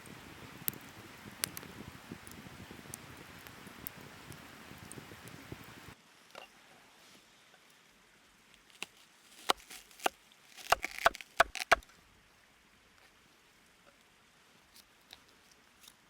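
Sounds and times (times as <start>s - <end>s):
chopping strikes on wood: 9.4s - 11.8s.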